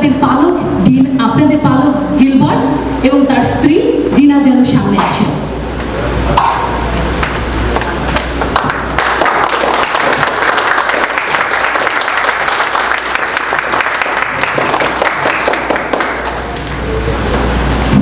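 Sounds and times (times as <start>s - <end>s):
crowd applauding: 7.2s - 17.0s.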